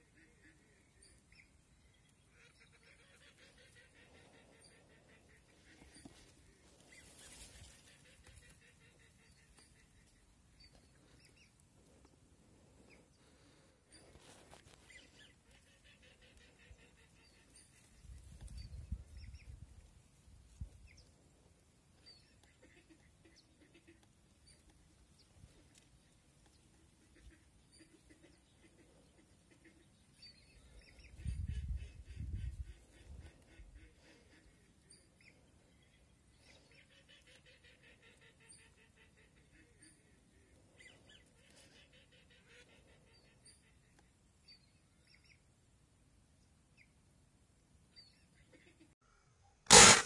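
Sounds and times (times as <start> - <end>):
faint bird calls: 0.0 - 19.6, 22.0 - 45.5
faint high chirps and ticks: 14.8 - 31.4, 34.9 - 45.5.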